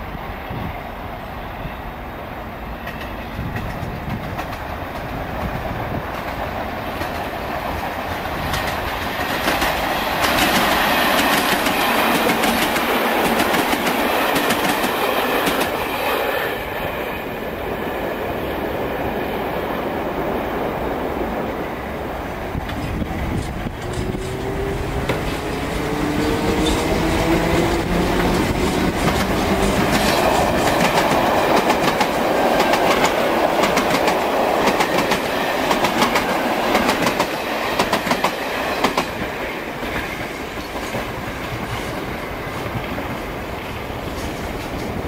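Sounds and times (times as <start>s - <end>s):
train wheels clattering over rail joints: 2.9s - 16.0s, 22.6s - 43.1s.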